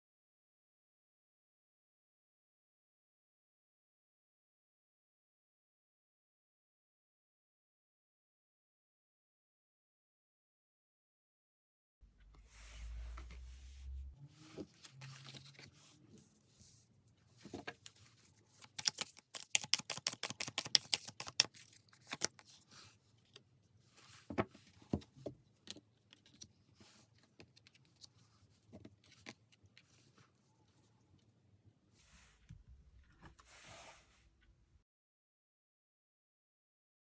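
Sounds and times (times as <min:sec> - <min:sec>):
cards being shuffled: 0:14.6 - 0:15.8, 0:17.4 - 0:22.8
rapid card snaps: 0:18.6 - 0:22.4.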